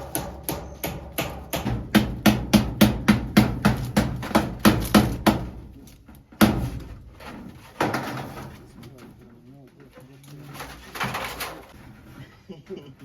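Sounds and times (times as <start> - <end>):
hammer blows ringing: 0.0 - 5.5.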